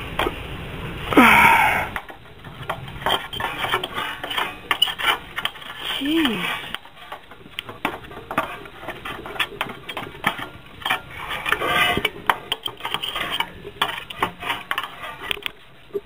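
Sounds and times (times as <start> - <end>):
metal tools clinking and rattling: 2.6 - 7.4.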